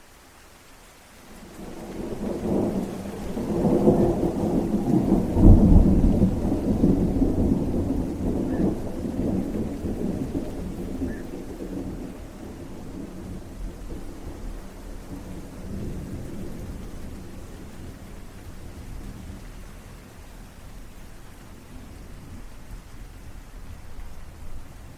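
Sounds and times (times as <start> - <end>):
steady rain: 0.0 - 24.9
rolling thunder: 1.6 - 19.8.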